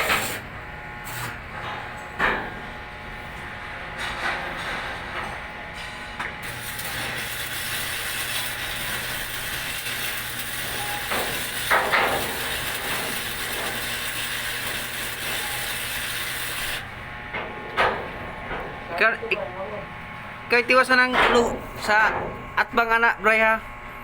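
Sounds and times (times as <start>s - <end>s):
welding arc hissing: 0.0s - 1.6s, 6.4s - 16.9s
low electrical hum: 0.0s - 24.0s.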